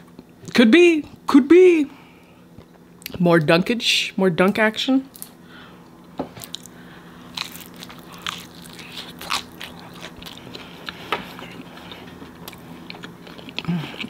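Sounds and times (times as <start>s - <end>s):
crunchy chewing: 6.3s - 14.0s.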